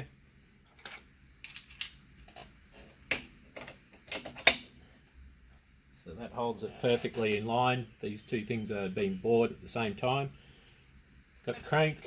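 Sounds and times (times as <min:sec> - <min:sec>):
metal parts clicking and tapping: 0:00.8 - 0:02.4.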